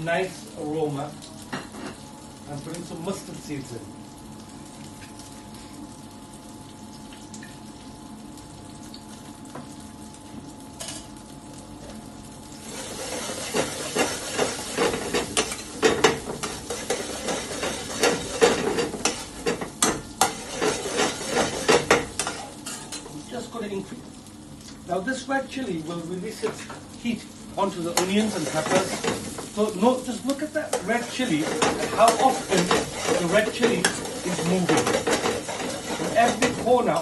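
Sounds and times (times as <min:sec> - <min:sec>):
hot oil sizzling in a pan: 0:00.0 - 0:37.0
metal spoon scraping a pan: 0:12.8 - 0:19.6, 0:20.2 - 0:23.0, 0:28.0 - 0:29.2, 0:30.7 - 0:36.6.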